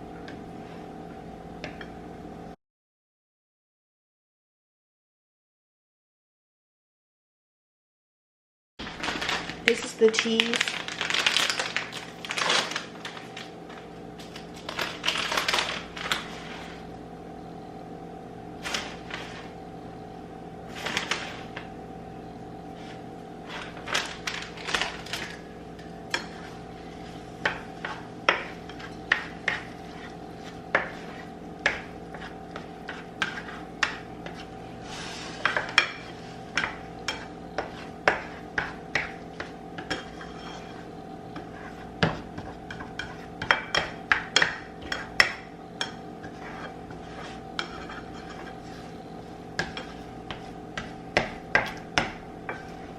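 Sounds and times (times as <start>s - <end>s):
steady hum: 8.8s - 52.9s
utensil scraping frying pan: 22.8s - 52.9s.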